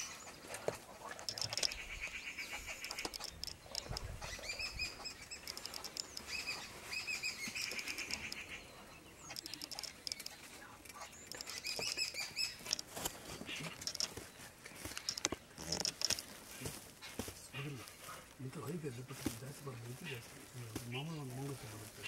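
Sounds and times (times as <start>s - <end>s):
small birds chirping: 0.0s - 22.0s
sharp clicks and knocks: 0.5s - 2.0s, 2.8s - 4.2s, 5.4s - 6.5s, 7.7s - 8.5s, 9.3s - 16.3s.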